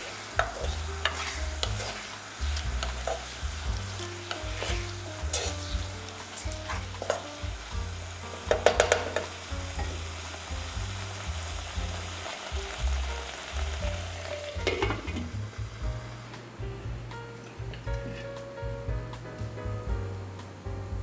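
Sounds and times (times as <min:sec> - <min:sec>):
spatula scraping a pan: 0:00.0 - 0:07.7, 0:08.4 - 0:10.0
noodles sizzling in a pan: 0:00.0 - 0:16.4.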